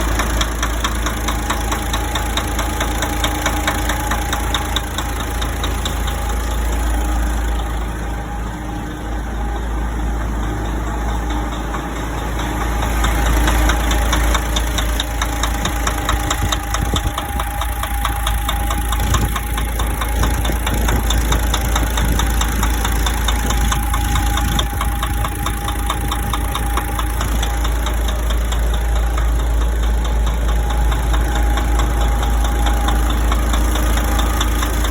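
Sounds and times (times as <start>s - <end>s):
diesel engine idling with knock: 0.0s - 34.9s.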